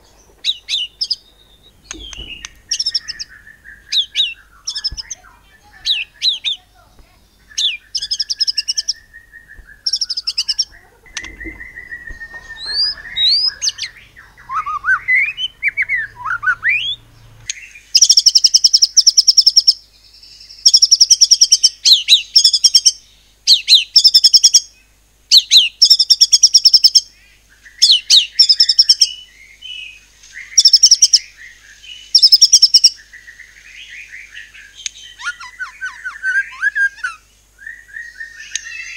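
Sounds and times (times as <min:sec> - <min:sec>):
bird singing trills and whistles: 0:00.0 - 0:38.9.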